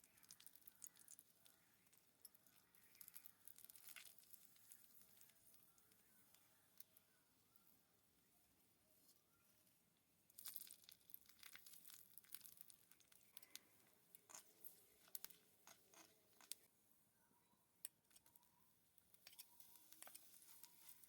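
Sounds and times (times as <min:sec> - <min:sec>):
food frying crackling: 0:00.0 - 0:06.9, 0:10.3 - 0:16.7, 0:19.2 - 0:21.0.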